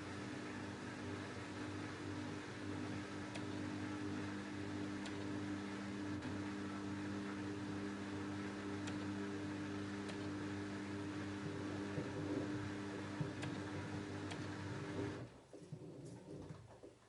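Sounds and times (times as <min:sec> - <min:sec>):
washing machine humming: 0:00.0 - 0:17.0.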